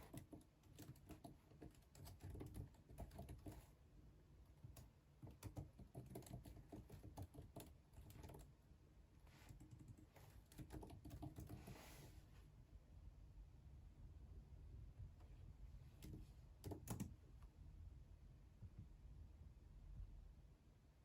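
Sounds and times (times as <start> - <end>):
typing on computer keyboard: 0.0 - 3.7, 4.6 - 8.5, 9.5 - 11.7, 16.0 - 17.2.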